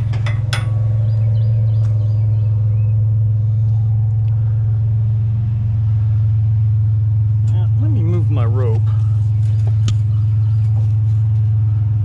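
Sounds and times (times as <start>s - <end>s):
sharp metallic clank: 0.0s - 1.5s
truck engine idling: 0.0s - 12.0s.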